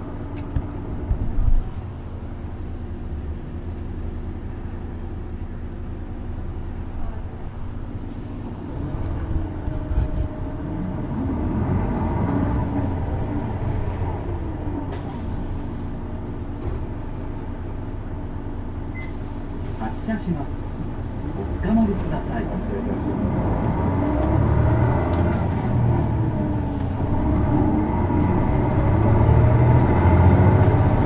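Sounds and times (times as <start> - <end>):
bus diesel engine running: 0.0 - 31.0
engine whine: 6.0 - 19.1, 20.6 - 31.0.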